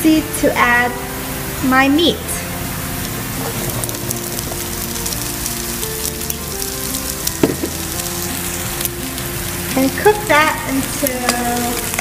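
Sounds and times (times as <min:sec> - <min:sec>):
meat frying in oil: 0:02.6 - 0:12.0
short knock: 0:07.4 - 0:07.8.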